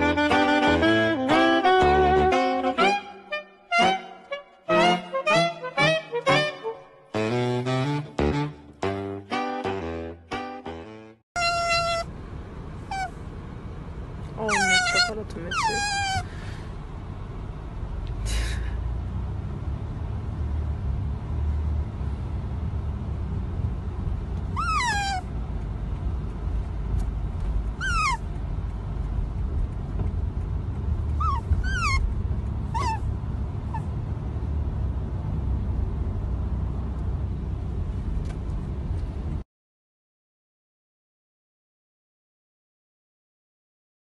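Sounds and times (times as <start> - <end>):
otter squeaky chirps: 11.4 - 12.1, 12.9 - 13.2, 14.4 - 16.3, 24.5 - 25.3, 27.8 - 28.3, 31.2 - 32.1, 32.7 - 33.1
low car rumble: 11.4 - 39.4.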